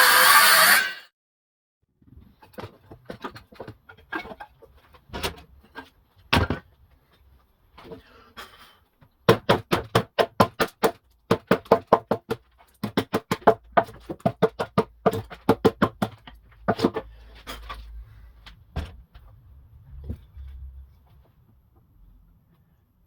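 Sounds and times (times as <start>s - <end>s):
hammer knocking on wood: 9.3s - 16.9s.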